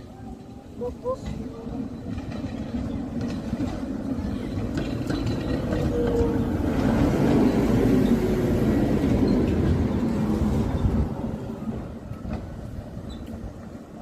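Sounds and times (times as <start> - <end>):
tram rumbling on rails: 0.0 - 14.0.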